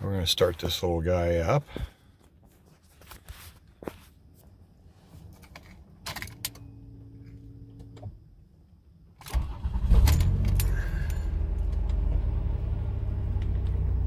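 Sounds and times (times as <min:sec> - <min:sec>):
car engine starting and idling: 0:09.2 - 0:14.0.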